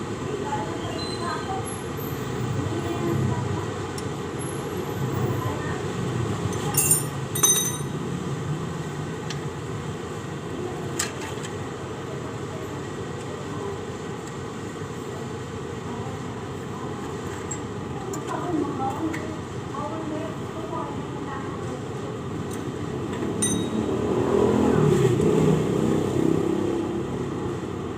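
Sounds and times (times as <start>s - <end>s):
metallic clinks of hand tools: 6.6s - 8.0s, 23.4s - 23.8s.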